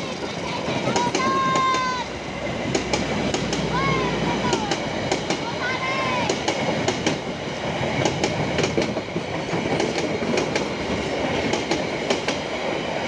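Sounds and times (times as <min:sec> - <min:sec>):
wheel clacks over rail joints: 0:00.0 - 0:02.0
train running rumble: 0:00.0 - 0:13.0.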